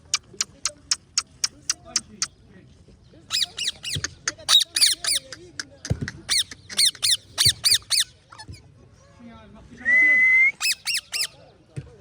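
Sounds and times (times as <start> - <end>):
parrot giving harsh calls: 6.3 - 8.1, 10.6 - 11.4.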